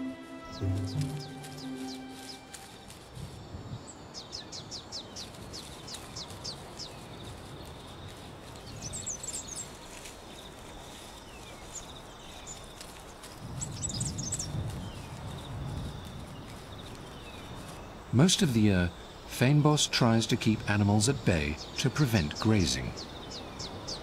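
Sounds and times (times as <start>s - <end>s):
high bird twittering: 0.0s - 2.8s
rustling in shrub: 0.0s - 18.5s.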